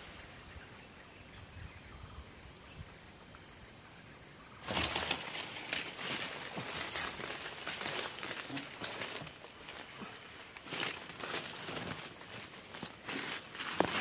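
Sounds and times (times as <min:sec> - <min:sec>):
dry leaves and twigs crackling: 0:04.6 - 0:14.0.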